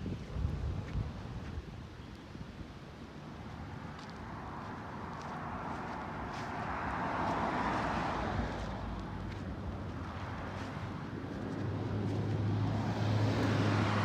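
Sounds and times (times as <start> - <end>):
vehicle passing with tyre noise: 3.2 - 14.0.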